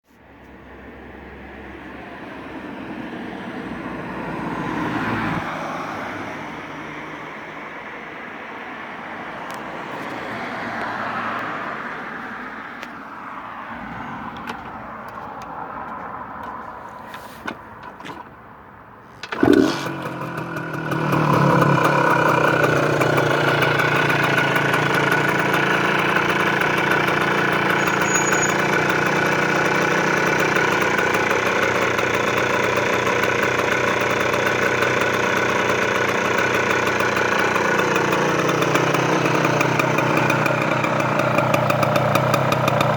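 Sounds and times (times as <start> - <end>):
engine starting burst: 19.2 - 42.9
motorcycle engine idling: 19.2 - 42.9.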